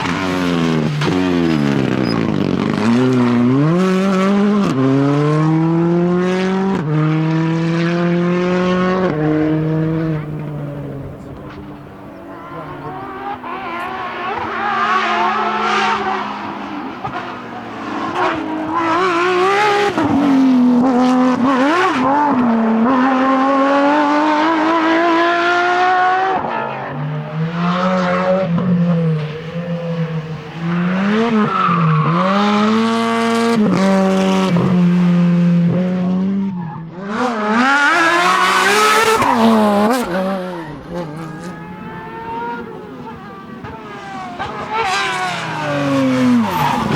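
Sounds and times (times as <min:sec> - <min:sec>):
tyre squeal: 0:00.0 - 0:03.1, 0:38.3 - 0:46.9
rally car engines at full throttle: 0:00.0 - 0:46.9.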